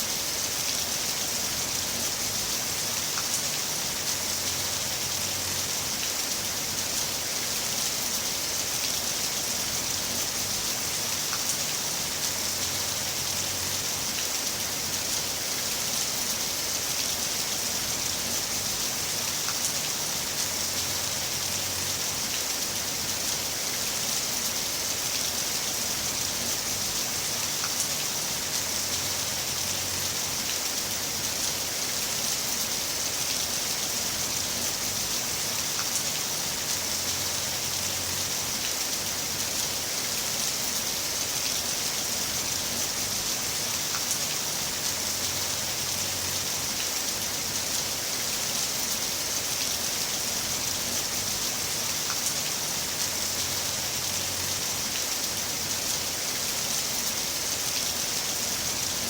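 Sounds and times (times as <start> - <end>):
heavy rain hissing: 0.0 - 59.0
faint raindrop ticks: 3.0 - 4.3, 11.2 - 12.5, 19.3 - 20.9, 27.1 - 29.1, 34.7 - 37.7, 43.6 - 45.8, 51.9 - 53.4.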